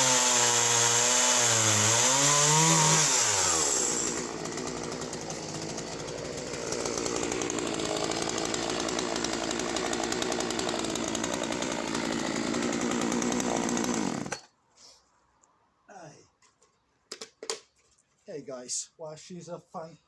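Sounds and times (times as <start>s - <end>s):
chainsaw cutting wood: 0.0s - 14.5s.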